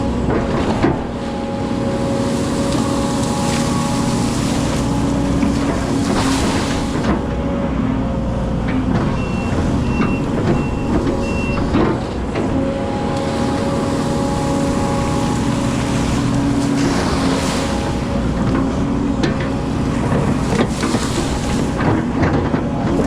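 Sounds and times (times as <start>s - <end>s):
excavator engine running: 0.0s - 23.0s
high warning alarm beeps: 9.2s - 11.7s.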